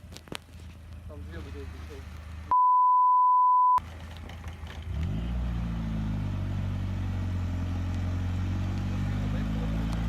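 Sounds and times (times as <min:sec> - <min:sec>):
vehicle engine starting and idling: 0:03.8 - 0:10.0.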